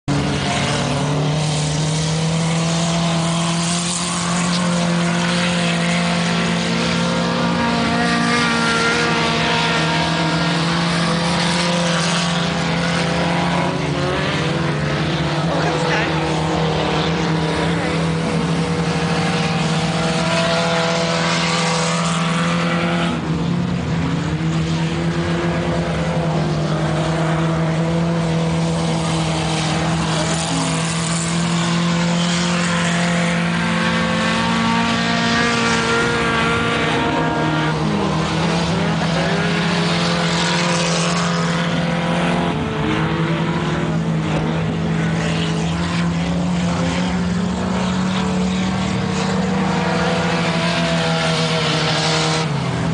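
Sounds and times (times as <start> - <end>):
racing car engines accelerating: 0.0 - 52.9.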